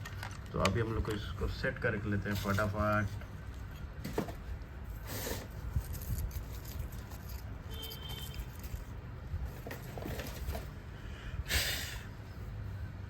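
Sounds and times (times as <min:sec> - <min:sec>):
plastic parts rustling: 0:00.0 - 0:04.5, 0:05.4 - 0:08.9, 0:09.5 - 0:10.7.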